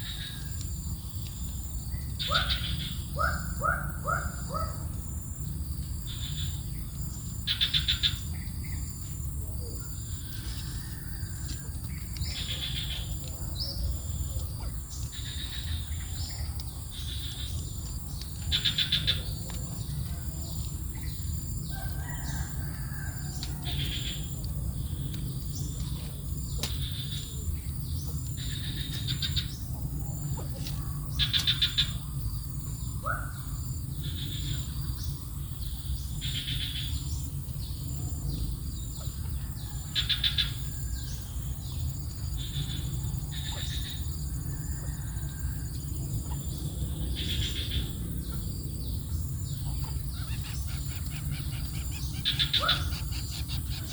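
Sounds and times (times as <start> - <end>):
small birds chirping: 5.5 - 44.8, 45.8 - 53.9
bird trills: 49.7 - 53.9.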